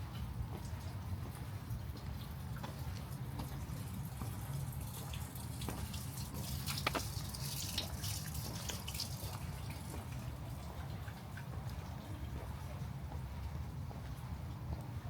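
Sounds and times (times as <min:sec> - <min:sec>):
raindrops ticking: 0:01.9 - 0:12.1.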